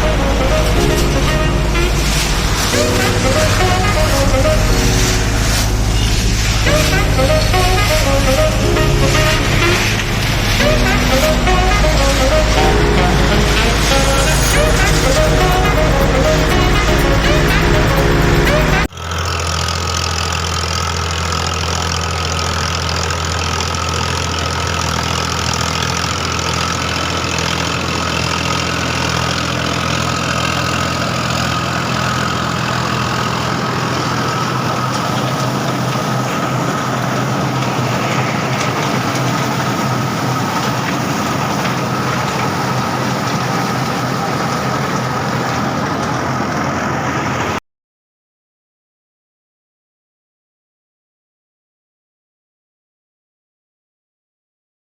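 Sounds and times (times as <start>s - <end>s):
high whine: 0.0s - 18.9s
tractor engine running: 0.0s - 46.7s.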